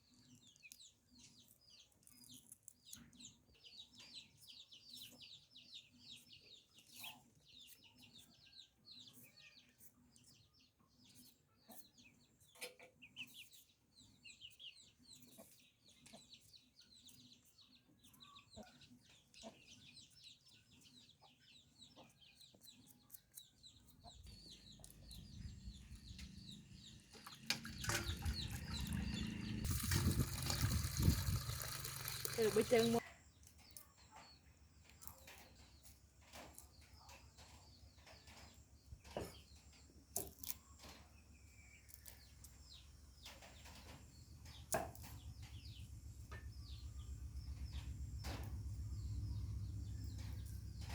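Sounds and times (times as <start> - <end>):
chickens cheeping and clucking: 23.8 - 29.7.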